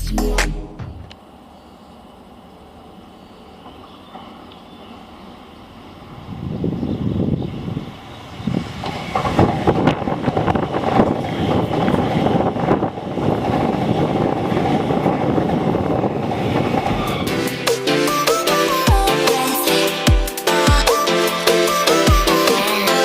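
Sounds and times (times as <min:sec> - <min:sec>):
train wheels rushing on rail: 0:01.0 - 0:18.5.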